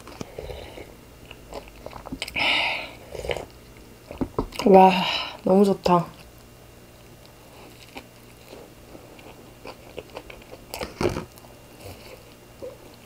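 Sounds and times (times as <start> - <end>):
chewing with wet clicks: 1.2 - 2.4, 7.0 - 13.0.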